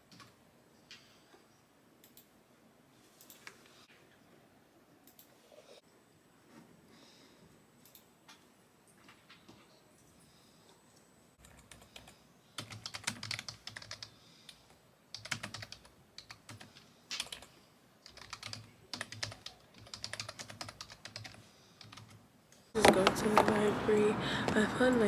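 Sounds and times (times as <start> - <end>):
typing on keyboard: 11.4 - 22.2.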